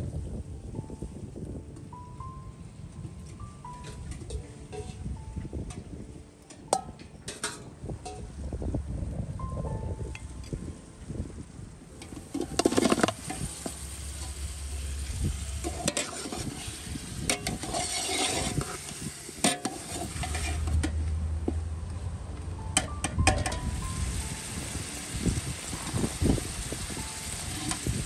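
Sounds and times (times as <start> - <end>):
onions sizzling in hot oil: 12.2 - 20.7, 23.7 - 28.0
metal spoon scraping a pot: 15.6 - 20.9.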